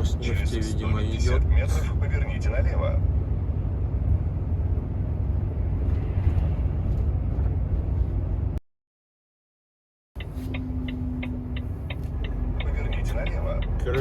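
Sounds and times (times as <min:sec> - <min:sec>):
truck diesel engine rumbling: 0:10.2 - 0:14.0.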